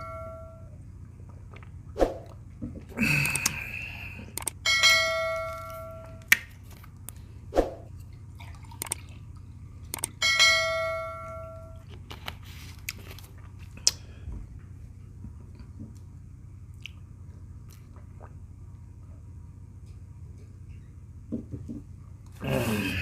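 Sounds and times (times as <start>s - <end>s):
dish ringing when struck: 0.0s - 0.8s, 4.6s - 6.2s, 10.2s - 11.8s.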